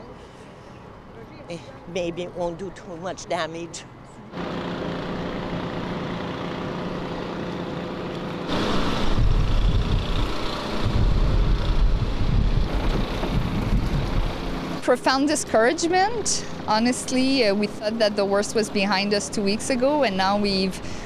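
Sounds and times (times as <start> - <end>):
engine running steadily: 4.0 - 21.0
heavy low rumble: 8.5 - 14.8.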